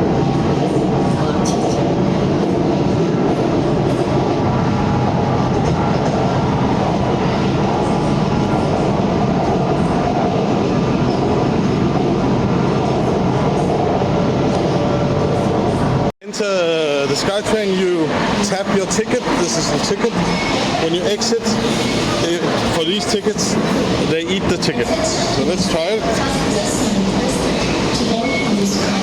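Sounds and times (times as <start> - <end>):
train rolling rumble: 0.0 - 29.0.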